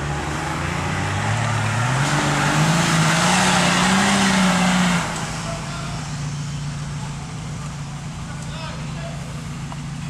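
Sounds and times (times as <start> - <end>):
engine revving under load: 0.0 - 6.9.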